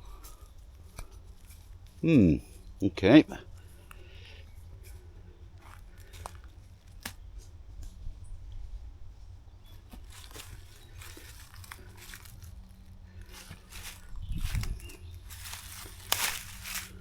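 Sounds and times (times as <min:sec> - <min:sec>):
footsteps crunching dry vegetation: 0:03.4 - 0:08.2, 0:09.6 - 0:17.0
low microphone rumble: 0:07.3 - 0:17.0.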